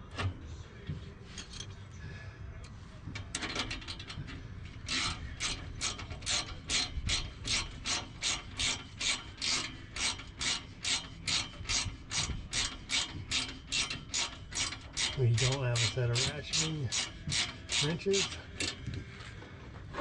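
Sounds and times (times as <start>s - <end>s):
ratcheting wrench clicking: 3.3s - 18.9s.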